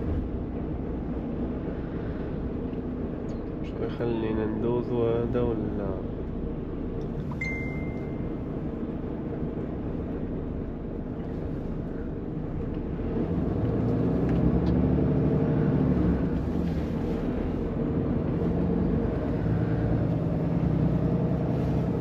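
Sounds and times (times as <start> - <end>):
short high beep: 7.3 - 8.3.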